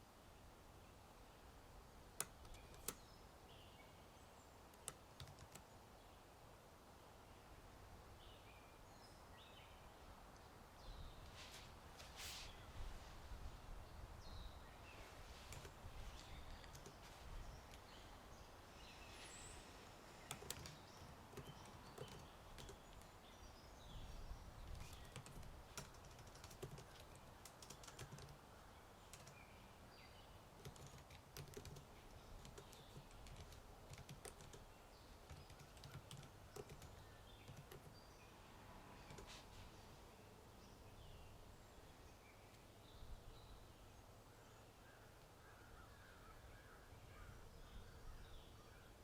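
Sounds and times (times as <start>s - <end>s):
faint birdsong: 0.0s - 49.0s
typing on computer keyboard: 2.2s - 3.0s, 4.8s - 5.6s, 16.6s - 17.0s, 20.2s - 23.1s, 24.8s - 28.4s, 29.1s - 29.4s, 30.6s - 34.6s, 35.3s - 38.0s, 39.1s - 39.3s
low rumble of wind: 5.7s - 35.5s.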